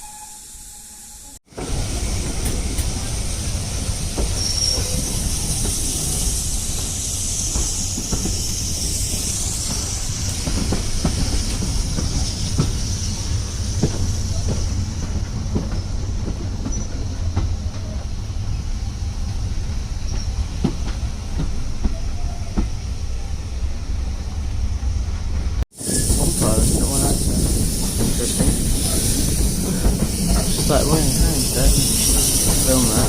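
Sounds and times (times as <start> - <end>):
train carriage rumbling on track: 0.0 - 33.0
high hiss or squeal: 2.9 - 14.8, 25.8 - 33.0.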